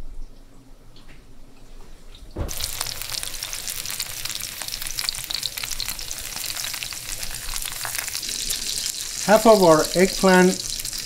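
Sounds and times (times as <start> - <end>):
eggplant sizzling in hot oil: 2.5 - 11.0.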